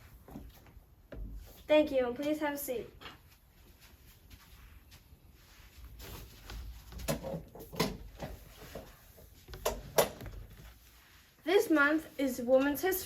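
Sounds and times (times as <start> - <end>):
shuffling and rustling: 3.1 - 13.0.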